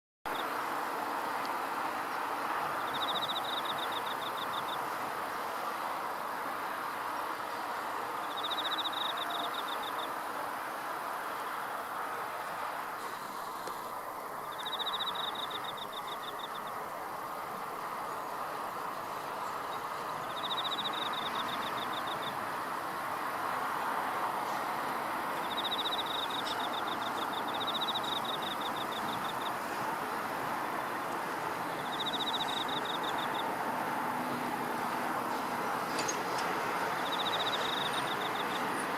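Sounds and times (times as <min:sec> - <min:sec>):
broad background hiss: 0:00.3 - 0:38.9
insect trilling: 0:02.8 - 0:04.8, 0:08.2 - 0:10.1, 0:14.4 - 0:16.8, 0:19.7 - 0:22.4, 0:25.4 - 0:29.6, 0:31.8 - 0:33.5, 0:37.0 - 0:38.6.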